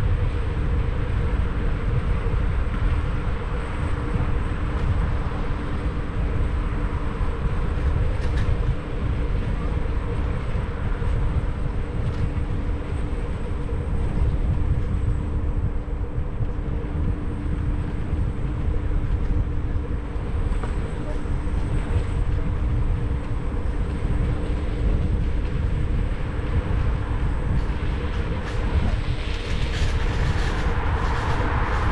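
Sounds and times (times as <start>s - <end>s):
steady low hum: 0.0s - 31.9s
wind rumble on microphone: 0.0s - 31.9s
road noise: 16.9s - 31.9s.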